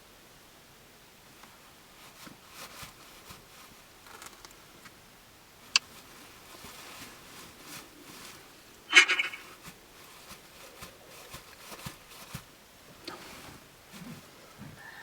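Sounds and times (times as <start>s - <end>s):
faint rustling: 1.3s - 15.0s
sharp click: 8.9s - 9.4s.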